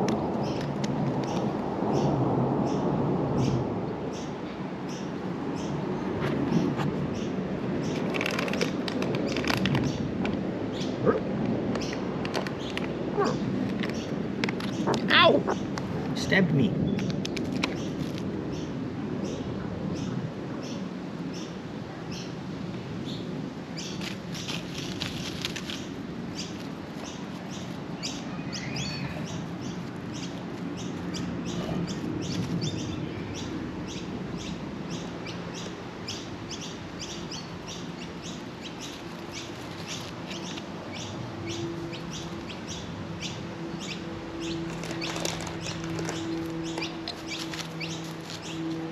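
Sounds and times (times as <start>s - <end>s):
birds chirping: 10.7s - 22.3s, 25.7s - 48.8s.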